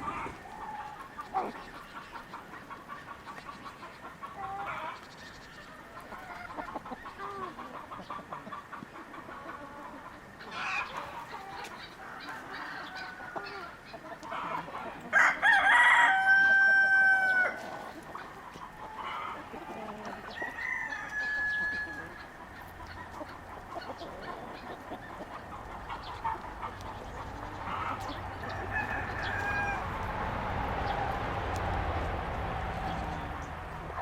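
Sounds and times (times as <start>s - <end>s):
chickens clucking: 0.0s - 34.0s
rooster crowing: 14.4s - 17.8s, 19.0s - 22.4s, 27.5s - 31.5s.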